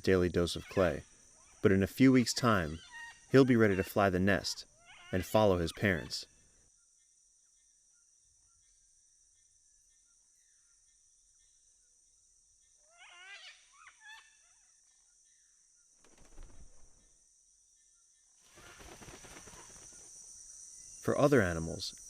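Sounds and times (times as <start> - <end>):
wavering bird calls: 0.0 - 6.4, 12.6 - 15.6, 18.4 - 20.1
high insect drone: 0.0 - 22.0.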